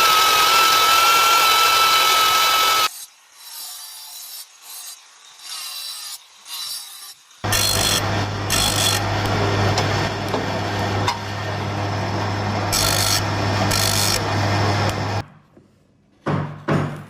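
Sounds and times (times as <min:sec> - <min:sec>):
steady motor hum: 0:00.0 - 0:02.9, 0:07.4 - 0:15.2.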